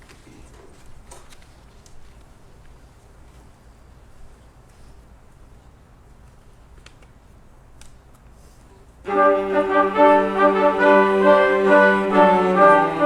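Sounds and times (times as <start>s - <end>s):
faint clicks: 7.8s - 8.3s
orchestra chord led by brass: 9.1s - 13.0s.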